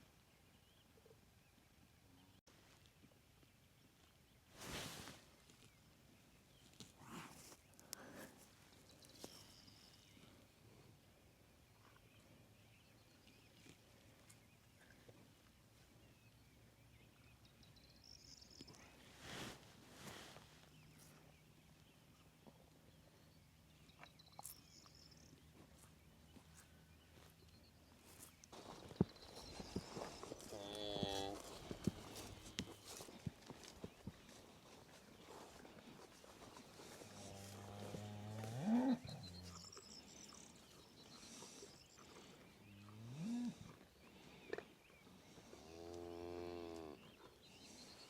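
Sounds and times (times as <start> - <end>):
faint high chirp: 8.8 - 10.2, 23.2 - 25.5, 38.6 - 42.0.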